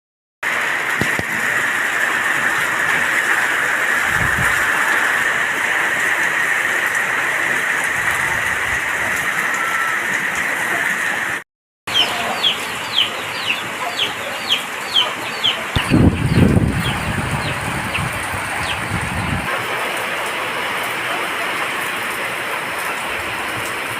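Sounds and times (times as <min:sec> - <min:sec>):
heavy rain falling: 0:00.4 - 0:23.9
high-pitched bird calls: 0:11.9 - 0:18.9.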